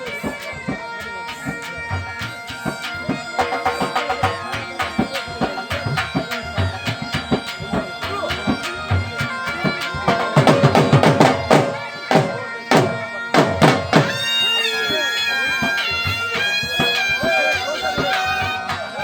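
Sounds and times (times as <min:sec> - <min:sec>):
drums beating fast: 0:00.0 - 0:15.0
bagpipes playing over drone: 0:00.0 - 0:19.0.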